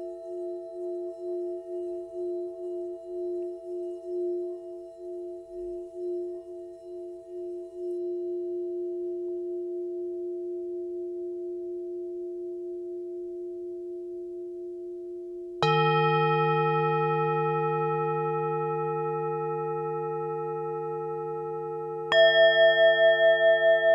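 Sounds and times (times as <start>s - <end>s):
singing bowl wavering hum: 0.0s - 23.9s
singing bowl struck ringing: 15.6s - 23.9s.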